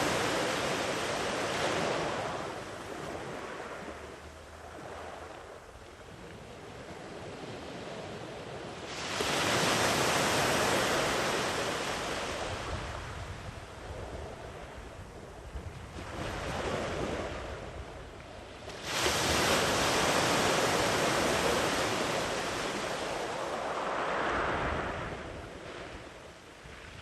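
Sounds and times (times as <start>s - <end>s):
ocean wave crashing: 18.9s - 26.1s.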